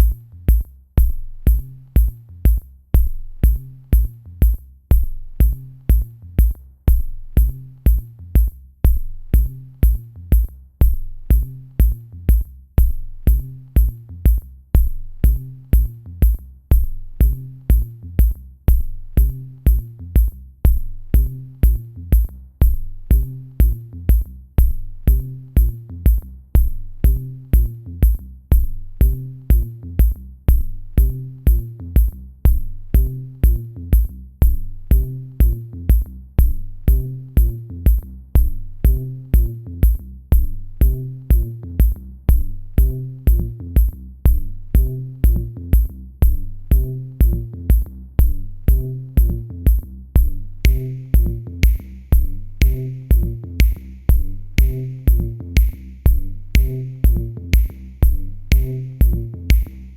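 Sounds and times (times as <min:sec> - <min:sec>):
deep kick drum: 0:00.0 - 0:59.9
repeating low bass figure: 0:16.7 - 0:59.9.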